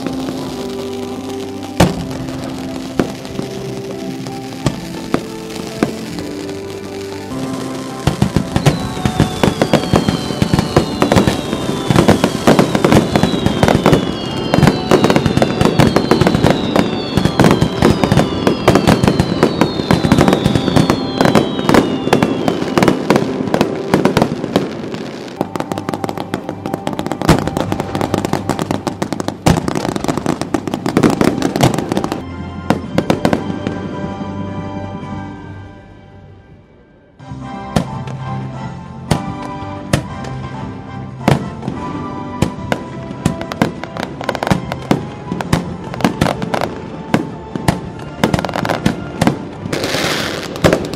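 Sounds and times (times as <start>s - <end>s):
fireworks bangs and crackling: 0.0s - 34.3s, 39.0s - 50.9s
falling firework whistles: 7.3s - 32.2s, 48.2s - 50.9s.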